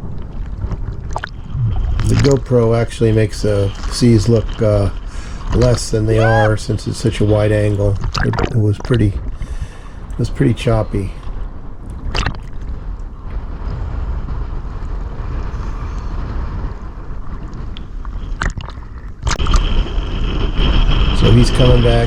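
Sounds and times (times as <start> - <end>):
sea water sloshing and gurgling: 0.0 - 10.1, 11.2 - 14.2, 16.6 - 21.1
motor rumble with high whine: 1.5 - 3.3.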